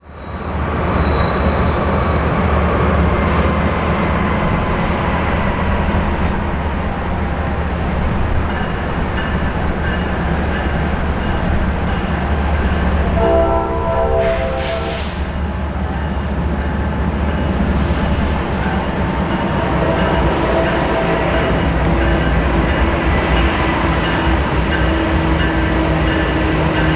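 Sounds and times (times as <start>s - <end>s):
diesel locomotive rumble: 0.0s - 26.9s
train horn blasts: 13.0s - 15.6s, 19.4s - 22.3s.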